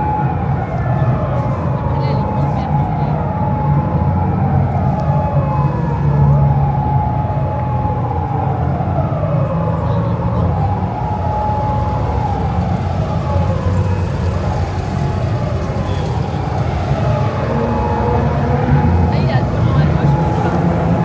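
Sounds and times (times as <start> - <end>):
vehicles passing: 0.0 - 21.0
vehicle drone: 12.9 - 21.0.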